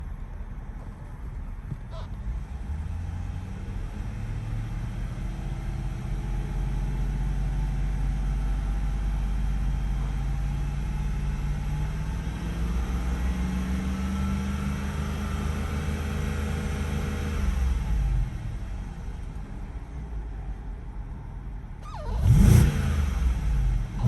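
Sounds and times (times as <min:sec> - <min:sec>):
car engine idling: 0:17.6 - 0:24.0.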